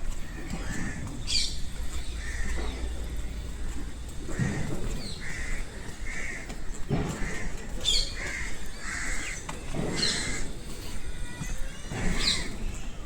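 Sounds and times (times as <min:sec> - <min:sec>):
crow-like caws: 0:02.2 - 0:02.8, 0:04.3 - 0:06.6, 0:07.2 - 0:07.5, 0:08.2 - 0:09.4.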